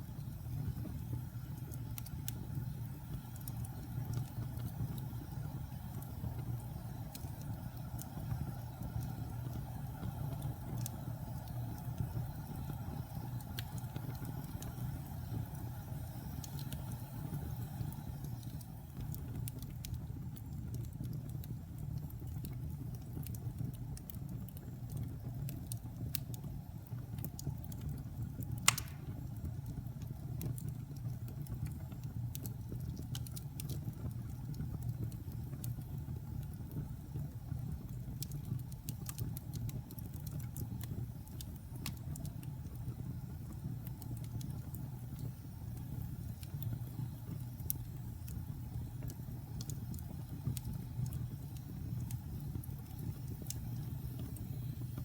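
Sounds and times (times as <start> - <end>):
fire crackles: 0.0 - 55.0
wood fire rumbling: 0.0 - 55.0
sharp pop of fire: 28.6 - 29.4.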